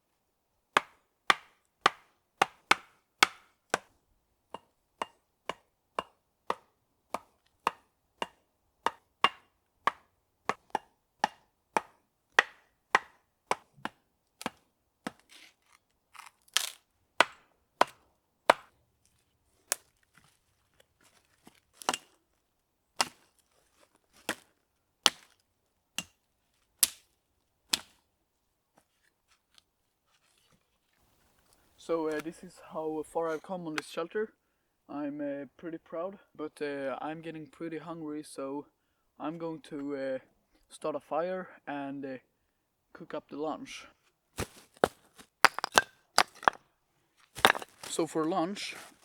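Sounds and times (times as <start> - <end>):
wood being chopped: 0.8 - 3.9, 4.5 - 15.3, 16.2 - 18.7, 21.8 - 22.1, 23.0 - 23.2, 24.1 - 25.4, 26.8 - 27.1, 27.7 - 28.0, 44.4 - 46.6, 47.4 - 48.0.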